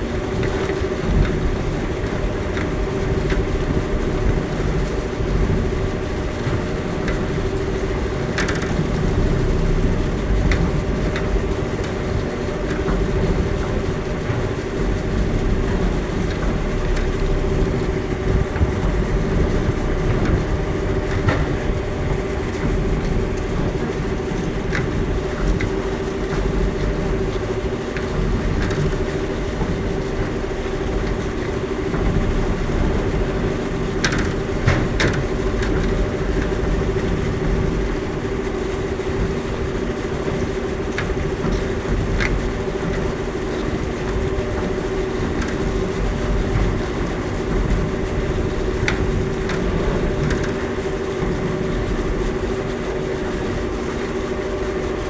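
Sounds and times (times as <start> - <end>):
electric drive hum: 0.0 - 55.0
low rumble: 1.0 - 38.2.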